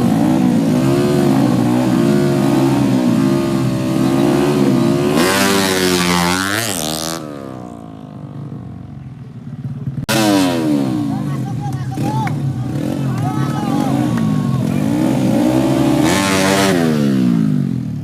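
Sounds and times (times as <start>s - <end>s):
motorcycle accelerating past: 0.0s - 8.3s
motorcycle engines revving: 0.0s - 18.0s.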